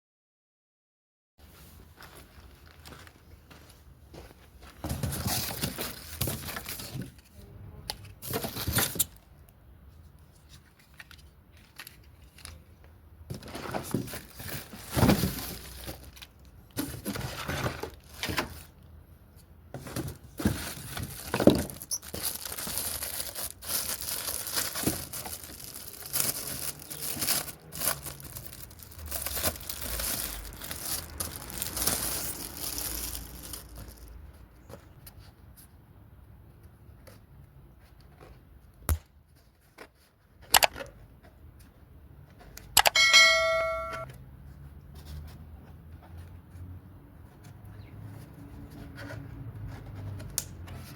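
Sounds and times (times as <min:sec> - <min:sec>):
plastic and cardboard crinkling: 0:01.7 - 0:03.8, 0:04.4 - 0:09.3, 0:10.0 - 0:35.6.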